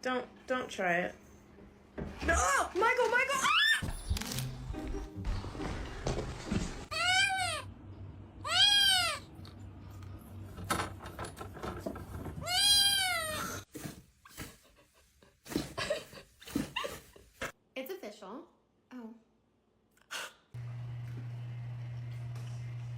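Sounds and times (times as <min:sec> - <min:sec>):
cat meowing: 0:08.4 - 0:09.2.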